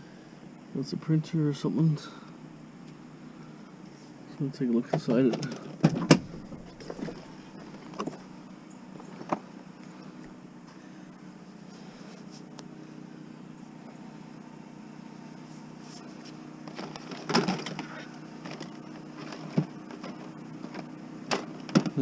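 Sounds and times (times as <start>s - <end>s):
steady low hum: 0.0s - 22.0s
plastic printer clattering: 16.7s - 22.0s.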